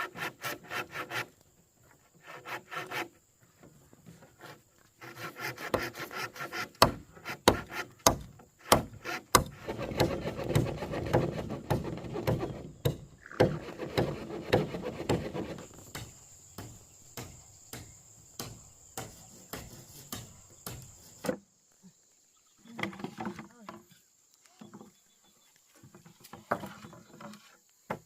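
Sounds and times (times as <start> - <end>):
rubbing and scraping wood: 0.0 - 16.0, 19.0 - 21.4, 25.6 - 28.0
high insect buzz: 0.0 - 25.0.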